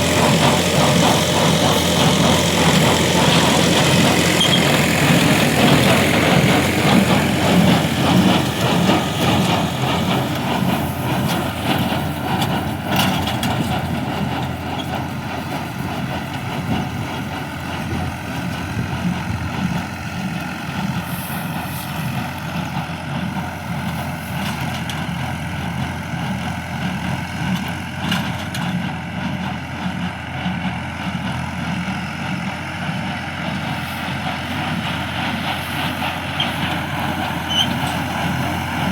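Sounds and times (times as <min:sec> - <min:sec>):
baler churning: 0:00.0 - 0:22.3
tractor engine drone: 0:00.0 - 0:38.9.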